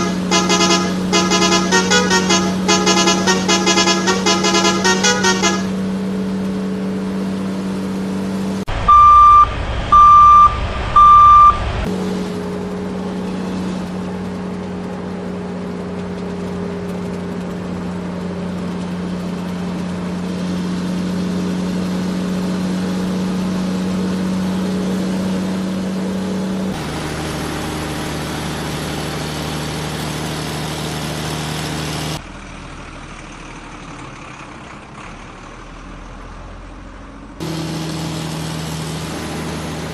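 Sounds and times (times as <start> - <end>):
vehicle engine running: 0.0 - 39.9
reversing beeps: 8.9 - 11.6.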